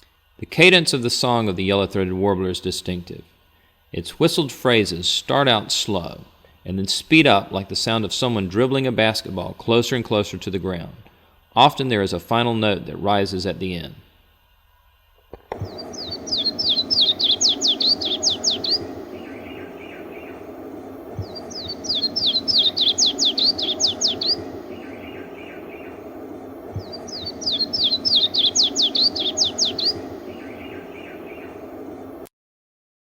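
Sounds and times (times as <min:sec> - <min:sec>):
warbler whistled song: 0:15.6 - 0:32.3.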